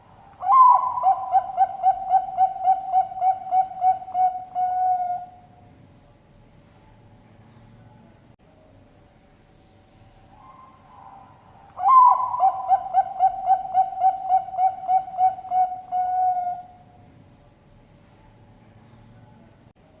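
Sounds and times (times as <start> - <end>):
dove cooing song: 0.0 - 5.6, 10.4 - 16.9.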